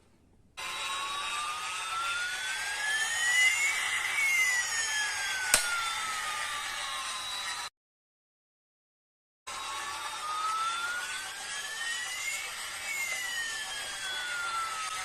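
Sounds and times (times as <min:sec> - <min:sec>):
mechanical jet-like whine: 0:00.6 - 0:07.7, 0:09.5 - 0:15.0
sharp click: 0:05.5 - 0:05.8.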